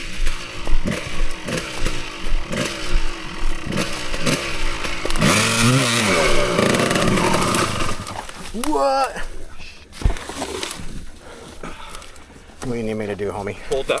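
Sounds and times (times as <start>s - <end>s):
dirt bike engine revving: 0.0s - 8.7s.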